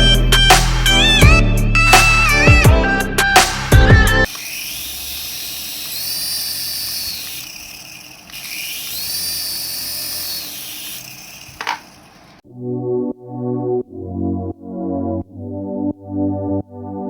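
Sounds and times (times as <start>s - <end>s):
toy electric motor whining: 4.2s - 12.4s.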